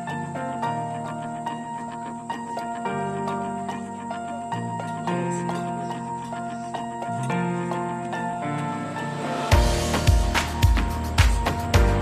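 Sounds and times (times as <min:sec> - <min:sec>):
picked notes over held chord: 0:00.0 - 0:12.0.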